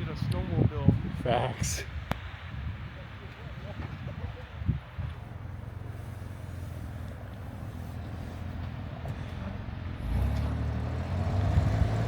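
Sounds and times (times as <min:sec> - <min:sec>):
off-road vehicle engine revving: 0:05.3 - 0:12.0.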